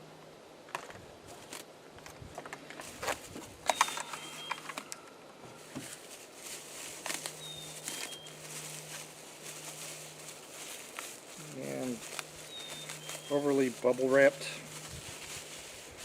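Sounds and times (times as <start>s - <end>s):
low steady hum: 0.0s - 16.0s
packaging rustling: 2.5s - 5.0s, 5.6s - 16.0s
faint bird chirps: 3.7s - 5.1s, 7.4s - 8.4s, 12.4s - 13.6s.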